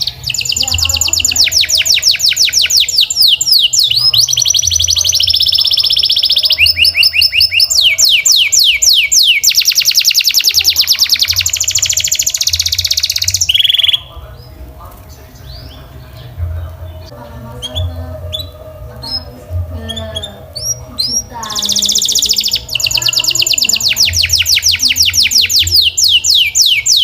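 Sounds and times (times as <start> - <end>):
canary singing trills: 0.0 - 27.0.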